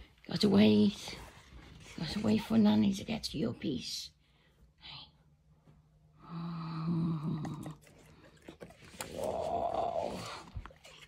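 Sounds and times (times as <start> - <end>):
dog groaning whine: 7.2 - 11.0.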